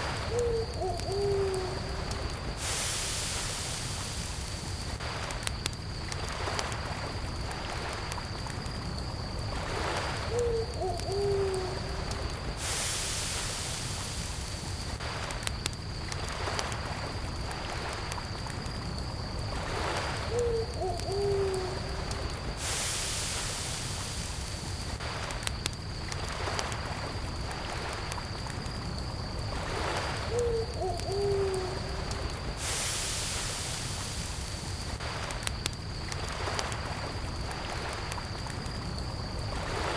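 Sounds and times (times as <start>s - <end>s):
cricket trill: 0.0s - 39.9s
fire crackling with pops: 2.0s - 10.3s, 12.0s - 20.3s, 21.9s - 30.3s, 32.0s - 39.9s
brief hiss: 12.6s - 14.6s, 22.6s - 24.6s, 32.6s - 34.7s.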